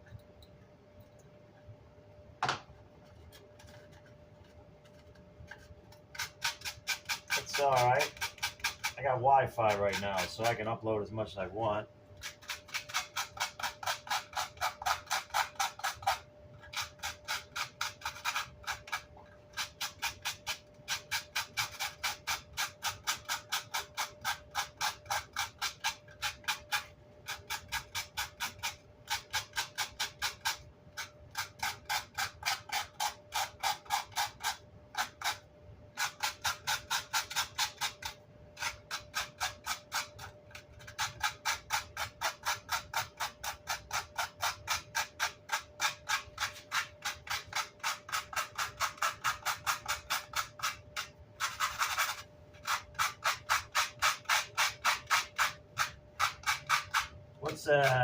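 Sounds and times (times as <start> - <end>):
faint steady hum: 0.0 - 58.0
hand scrubbing grill cloth: 7.3 - 8.2.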